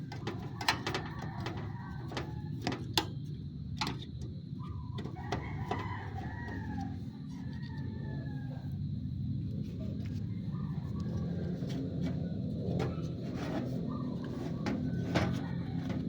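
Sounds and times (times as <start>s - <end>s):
steady low hum: 0.0s - 16.0s
rooster crowing: 0.8s - 2.9s, 5.0s - 8.9s, 13.9s - 16.0s.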